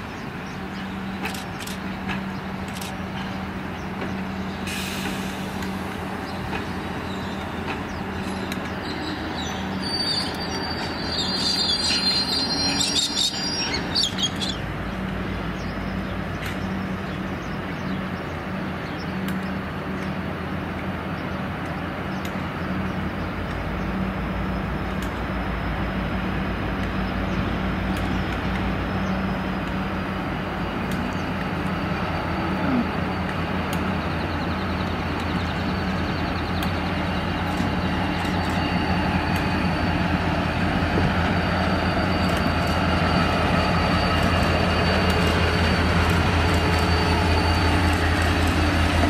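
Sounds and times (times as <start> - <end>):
diesel locomotive engine humming: 0.0 - 49.0
train carriages rolling on tracks: 0.0 - 49.0
high-pitched wheel squeal: 9.0 - 14.6, 40.8 - 48.4.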